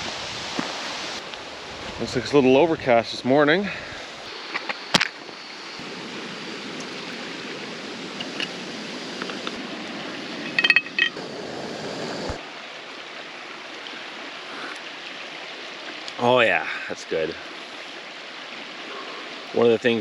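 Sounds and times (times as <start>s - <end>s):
steady rushing hiss: 0.0s - 14.9s
cup and pot clinking: 10.4s - 11.2s.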